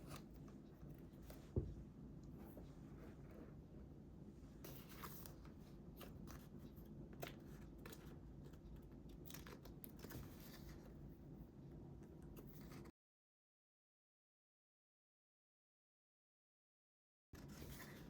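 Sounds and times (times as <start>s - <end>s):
low room hum: 0.0s - 12.9s.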